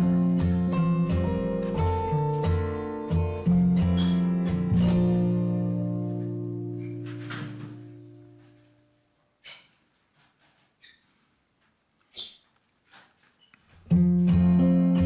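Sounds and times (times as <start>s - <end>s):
acoustic guitar chord ringing: 0.0s - 8.8s, 13.9s - 15.0s.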